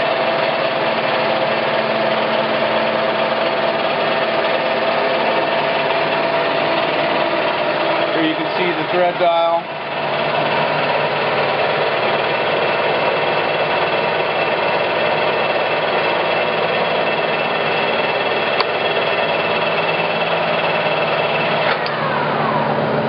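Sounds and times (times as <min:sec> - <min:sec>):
lathe running with gear whine: 0:00.0 - 0:23.0
sharp click: 0:18.6 - 0:18.8, 0:21.6 - 0:22.0.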